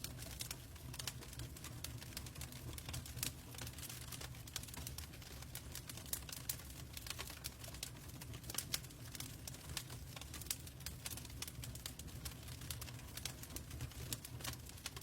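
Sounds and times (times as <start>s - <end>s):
log fire crackling: 0.0s - 15.0s.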